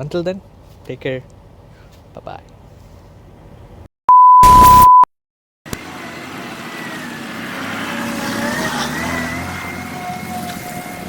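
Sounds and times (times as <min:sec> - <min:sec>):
loud pure beep tone: 0:04.1 - 0:05.1
motor vehicle running: 0:05.7 - 0:11.0.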